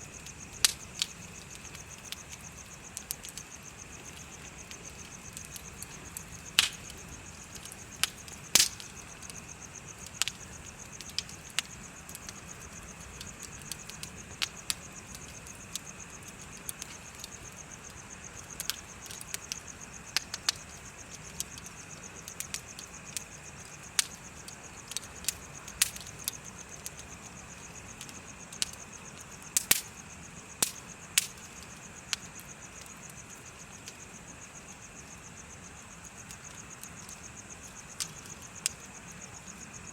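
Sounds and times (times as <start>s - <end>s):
bonfire crackling: 0.0s - 39.9s
burning wood popping: 0.0s - 39.9s
insects chirping: 0.0s - 39.9s.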